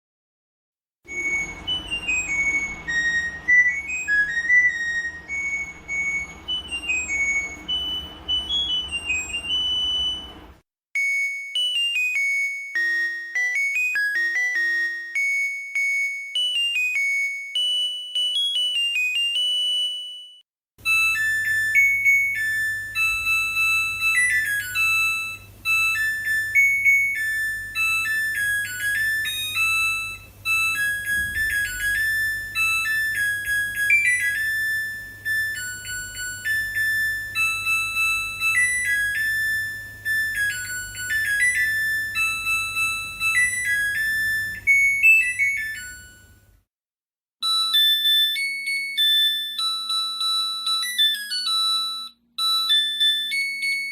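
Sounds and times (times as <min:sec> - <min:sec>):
steady low hum: 0:01.1 - 0:10.6
washing machine beeping melody: 0:01.1 - 0:46.5, 0:47.4 - 0:53.9.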